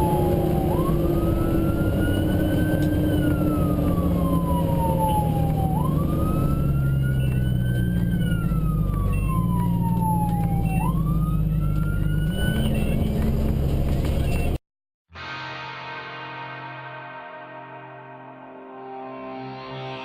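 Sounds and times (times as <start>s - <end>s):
fire engine siren wailing: 0.0s - 13.5s
road noise: 0.0s - 14.6s
truck engine running: 0.0s - 14.6s.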